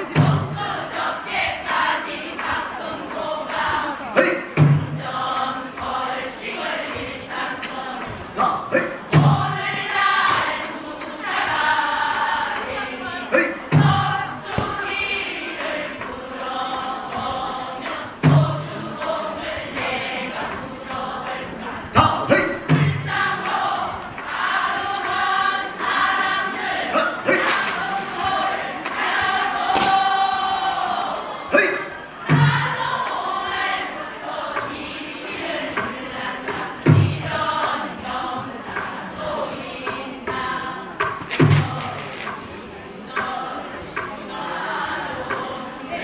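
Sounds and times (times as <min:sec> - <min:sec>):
group singing folk song: 0:00.0 - 0:46.0.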